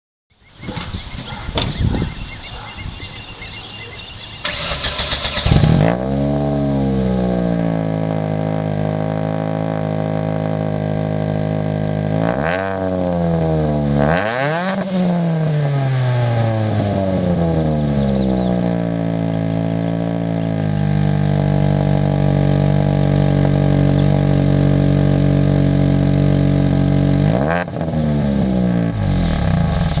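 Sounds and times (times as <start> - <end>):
engine throttle blips: 4.3 - 12.9, 13.8 - 30.0
starter motor cranking: 4.4 - 5.8
car engine idling: 16.5 - 27.3.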